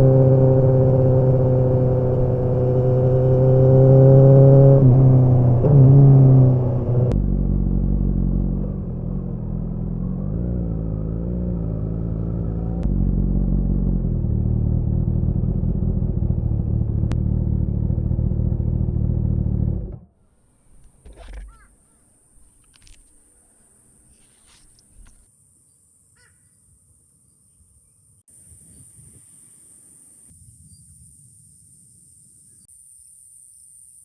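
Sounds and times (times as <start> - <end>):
motorcycle engine running hard: 0.0 - 19.9.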